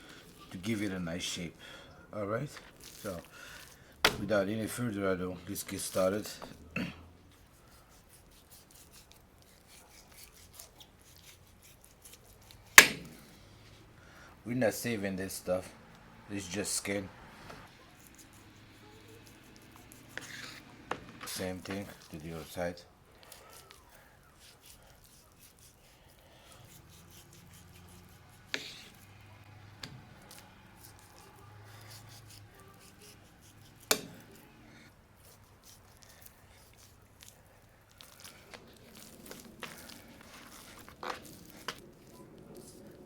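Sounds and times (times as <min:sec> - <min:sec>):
knife scraping meat: 0:02.5 - 0:04.9, 0:07.4 - 0:13.5, 0:17.6 - 0:43.0.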